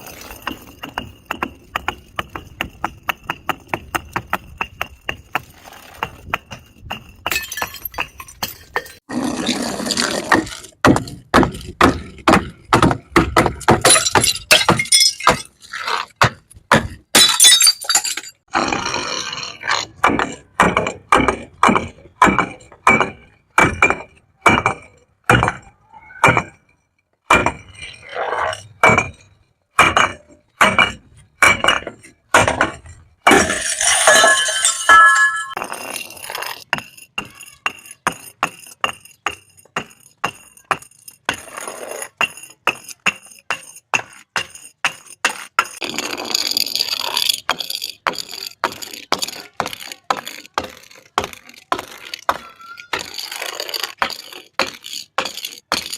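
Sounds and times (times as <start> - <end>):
glass bottles breaking: 7.2 - 9.0, 13.8 - 15.9, 17.1 - 18.4, 33.3 - 35.6.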